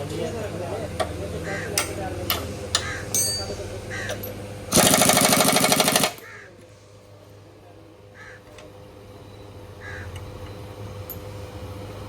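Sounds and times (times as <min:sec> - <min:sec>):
crows cawing: 0:01.4 - 0:01.8, 0:02.8 - 0:03.1, 0:03.9 - 0:04.2, 0:06.1 - 0:06.6, 0:08.2 - 0:08.5, 0:09.8 - 0:10.2
pneumatic impact wrench rattling: 0:04.7 - 0:06.2.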